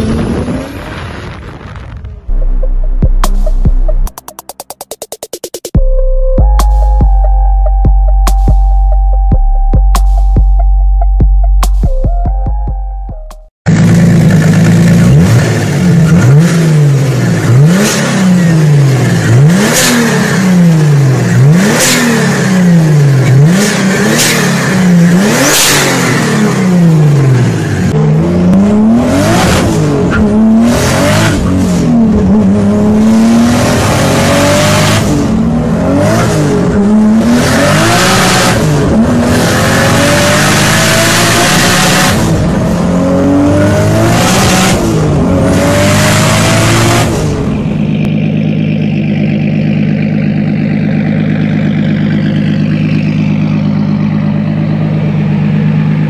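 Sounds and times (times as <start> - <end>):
turbocharged engine revving: 13.7 - 56.0.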